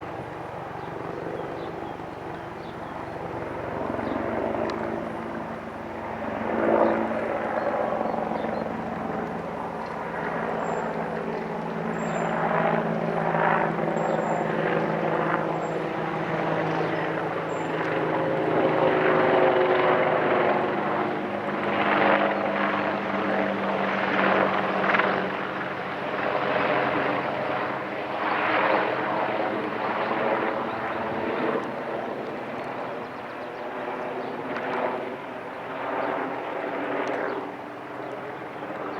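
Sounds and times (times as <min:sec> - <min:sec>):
helicopter flying overhead: 0:00.0 - 0:38.9.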